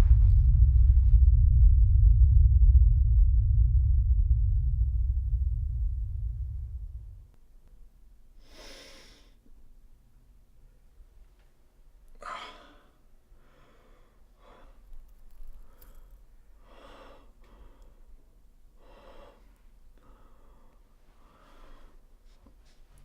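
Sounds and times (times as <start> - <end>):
person gasping for breath: 12.2 - 14.8.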